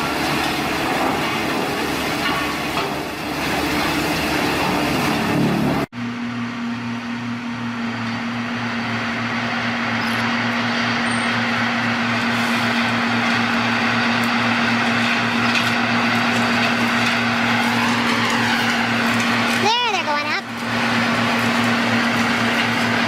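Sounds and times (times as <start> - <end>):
heavy machine engine running: 0.0 - 23.0.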